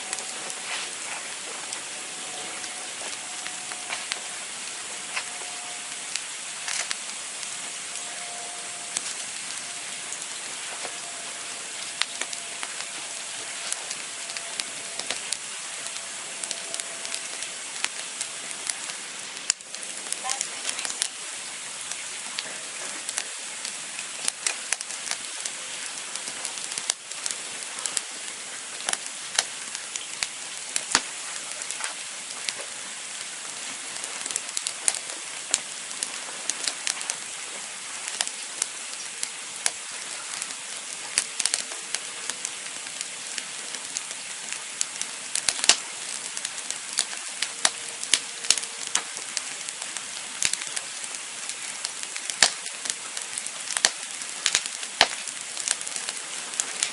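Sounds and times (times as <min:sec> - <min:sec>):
campfire crackling: 0:00.0 - 0:56.9.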